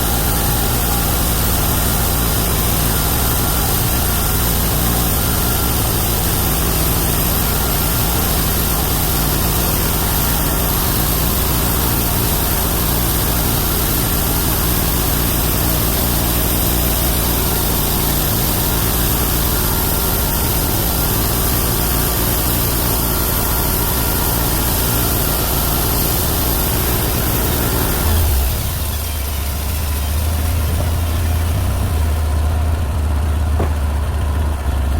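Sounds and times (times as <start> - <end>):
engine hum: 0.0 - 34.9.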